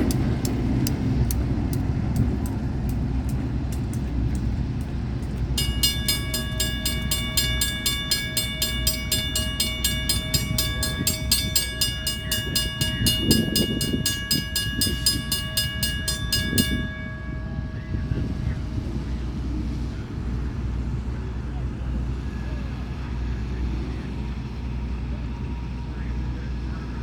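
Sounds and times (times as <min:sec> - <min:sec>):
passing train rumble: 0:00.0 - 0:27.0
crossing bell ringing: 0:05.5 - 0:23.6.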